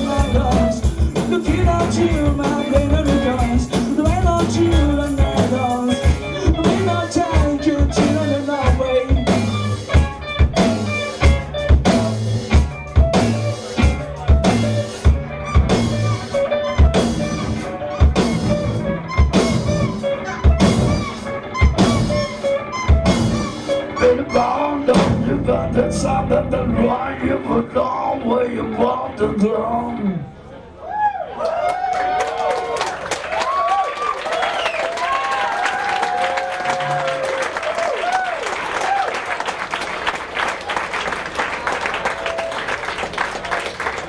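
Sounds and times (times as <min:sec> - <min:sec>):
drum kit beat: 0:00.0 - 0:26.0
electric guitars: 0:00.0 - 0:30.3
bass guitar: 0:00.0 - 0:30.4.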